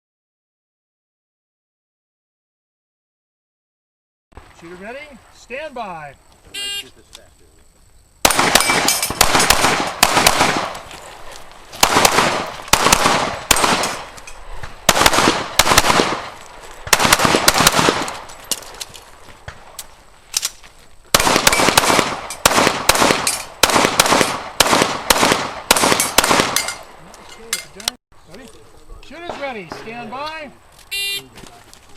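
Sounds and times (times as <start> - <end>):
pistol shots with echo: 8.2 - 10.9, 11.8 - 14.2, 14.8 - 18.3, 21.1 - 26.8.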